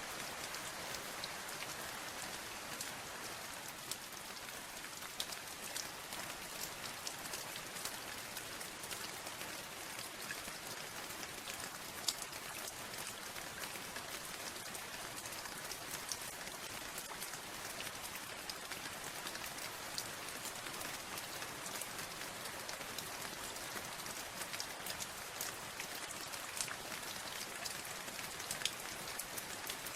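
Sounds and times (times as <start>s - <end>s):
rain drops ticking: 0.0s - 29.9s.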